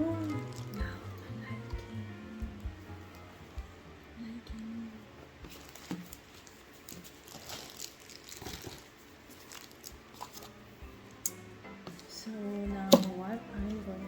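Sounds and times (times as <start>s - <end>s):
plastic packaging crinkling: 0.2s - 0.9s, 5.5s - 10.6s.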